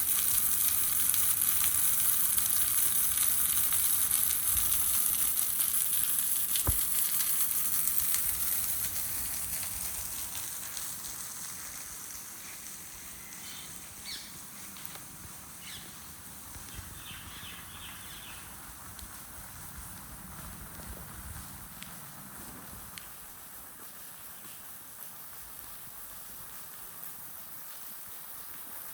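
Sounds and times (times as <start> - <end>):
rain hissing: 0.0 - 28.9
sharp tap: 6.6 - 6.9.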